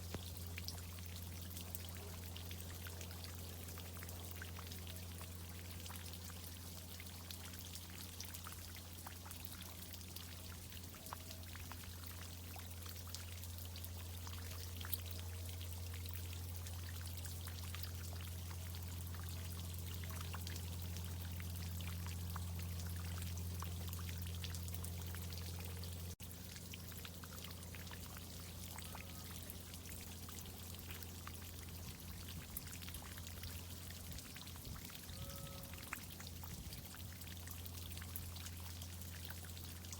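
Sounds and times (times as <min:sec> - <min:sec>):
water drip ticks: 0:00.0 - 0:39.9.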